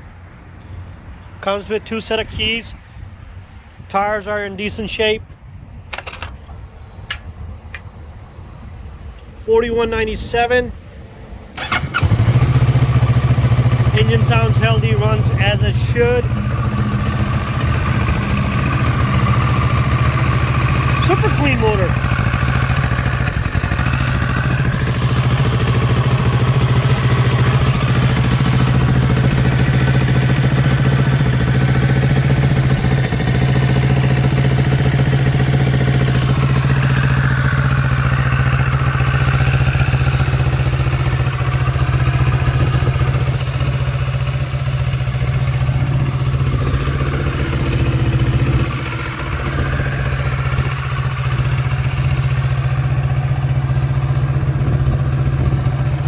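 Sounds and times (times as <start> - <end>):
motorcycle engine idling: 11.6 - 56.0.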